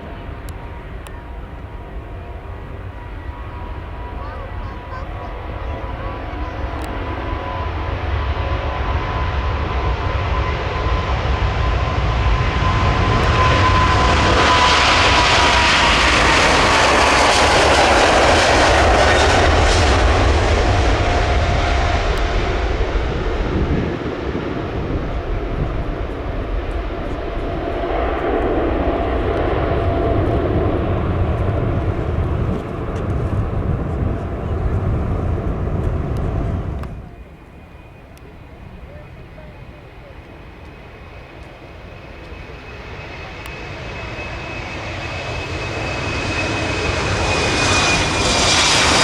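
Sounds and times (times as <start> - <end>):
low wind rumble on microphone: 0.0 - 40.4
jet engines roaring: 0.0 - 49.0
jet fan whine dropping in pitch: 3.3 - 39.9.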